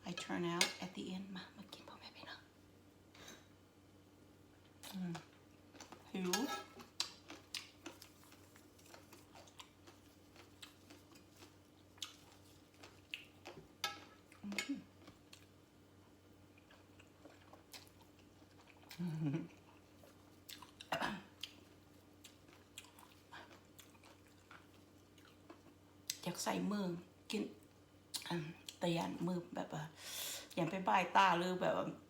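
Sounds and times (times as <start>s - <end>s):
chewing and biting food: 6.8s - 13.7s, 16.6s - 25.8s.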